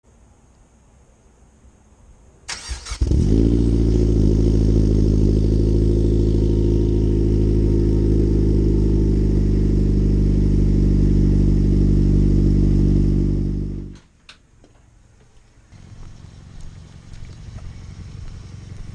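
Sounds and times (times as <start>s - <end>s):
car engine starting and idling: 2.5s - 14.0s, 15.7s - 18.9s.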